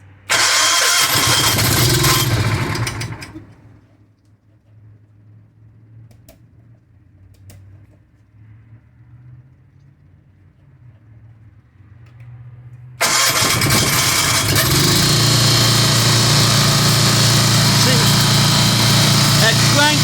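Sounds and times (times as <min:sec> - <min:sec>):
generator running loudly: 0:00.3 - 0:03.8, 0:13.0 - 0:20.0.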